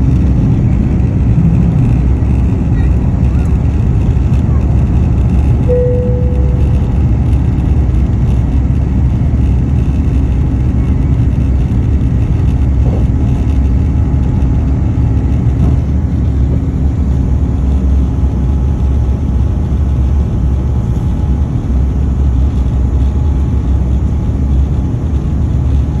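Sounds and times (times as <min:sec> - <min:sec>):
jet engines deep rumble: 0:00.0 - 0:26.0
faint hum: 0:05.6 - 0:08.3.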